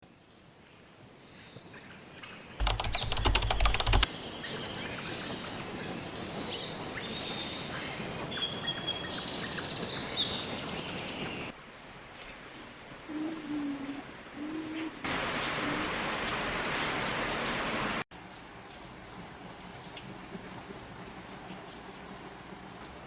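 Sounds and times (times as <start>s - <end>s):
loud rapid rattling burst: 2.6s - 4.1s.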